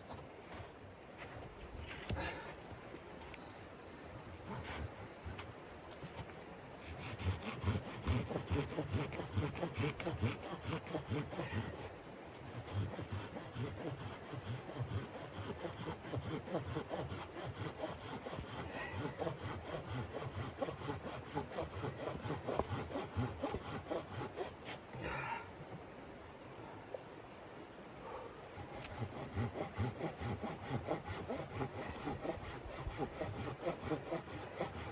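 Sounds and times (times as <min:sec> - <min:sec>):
hand saw cutting wood: 0:04.3 - 0:24.8, 0:28.5 - 0:34.9.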